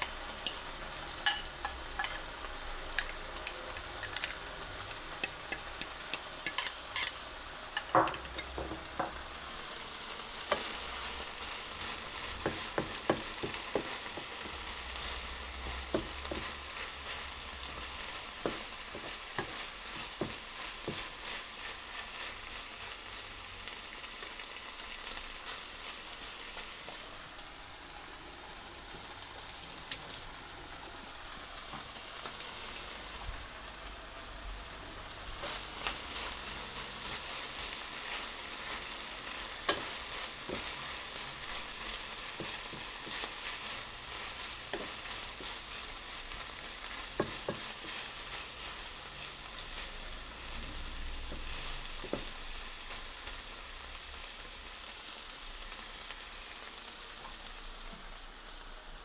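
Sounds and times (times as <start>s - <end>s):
food sizzling in a hot pan: 0.0s - 59.0s
utensil clicking and scraping pan: 2.9s - 7.2s.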